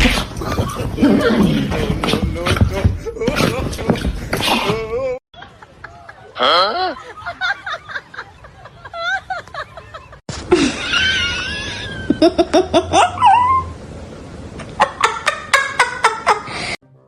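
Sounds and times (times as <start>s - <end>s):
people laughing: 5.4s - 13.1s.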